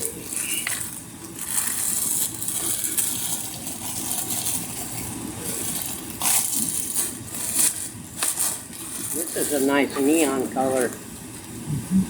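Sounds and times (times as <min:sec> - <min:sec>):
plastic packaging crinkling: 0:00.0 - 0:11.1.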